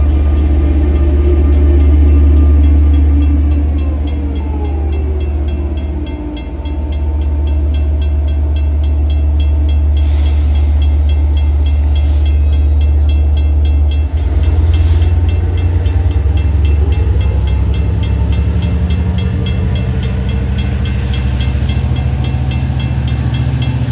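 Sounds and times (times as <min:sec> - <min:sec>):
diesel train rumbling: 0:00.0 - 0:23.9
hiss bursts: 0:09.9 - 0:12.4, 0:14.0 - 0:15.6.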